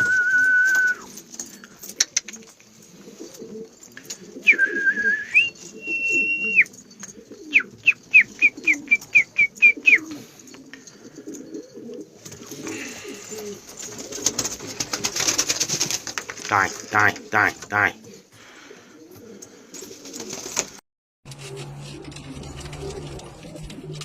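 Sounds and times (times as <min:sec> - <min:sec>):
falling whistled chirps: 0:00.0 - 0:01.1, 0:04.4 - 0:06.8, 0:07.4 - 0:10.2
pigeons cooing: 0:00.0 - 0:24.0
high whistled note: 0:04.5 - 0:06.7.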